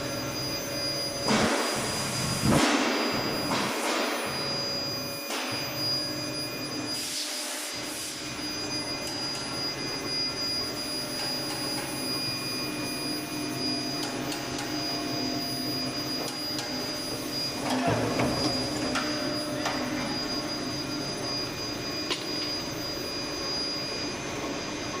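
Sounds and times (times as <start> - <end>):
heating machine hum and whine: 0.0 - 25.0
workshop machine noise: 0.0 - 25.0.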